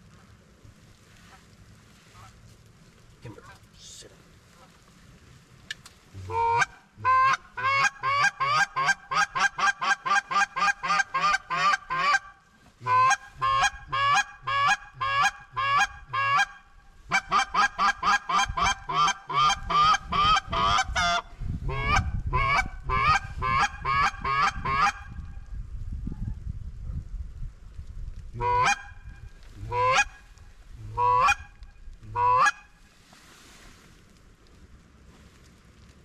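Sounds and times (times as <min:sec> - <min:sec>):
goose call honks and clucks: 0:06.2 - 0:25.1, 0:28.4 - 0:32.7.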